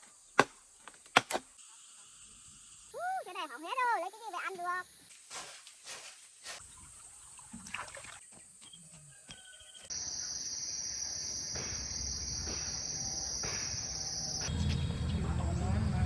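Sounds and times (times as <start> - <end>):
high insect drone: 9.9 - 14.8.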